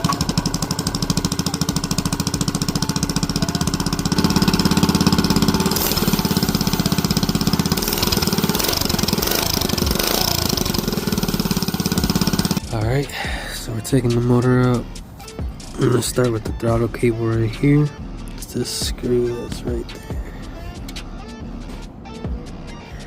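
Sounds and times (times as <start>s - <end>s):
mini bike engine running: 0.0s - 12.6s.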